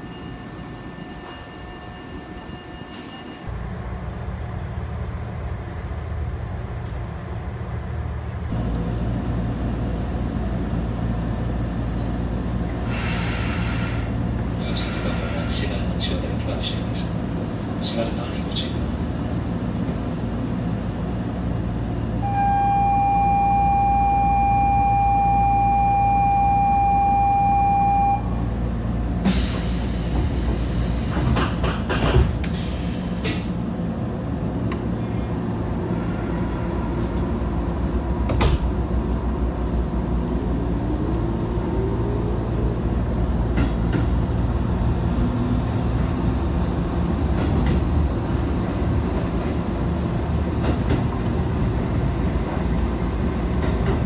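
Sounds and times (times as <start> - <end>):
train low rumble: 0.0 - 54.0
electronic signal tone: 22.2 - 28.4.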